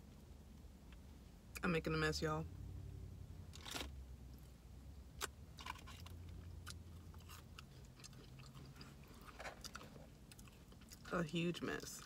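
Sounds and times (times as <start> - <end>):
low steady hum: 0.0 - 12.0
person chewing food: 5.2 - 11.1.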